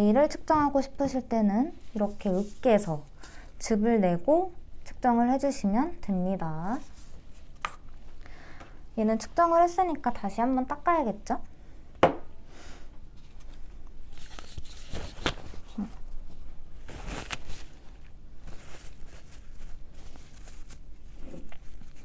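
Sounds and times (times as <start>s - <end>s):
tissue rustling and rubbing: 1.8s - 3.1s, 13.2s - 22.0s.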